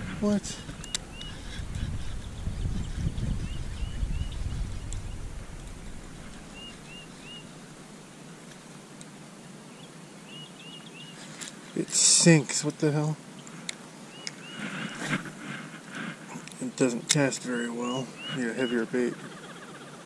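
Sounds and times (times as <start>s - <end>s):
low rumble: 0.0s - 8.2s
bird rising chirps: 0.6s - 8.0s.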